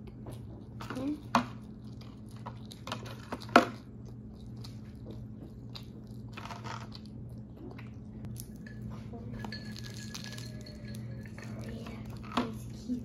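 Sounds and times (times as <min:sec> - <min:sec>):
crunchy chewing: 0:00.0 - 0:08.6.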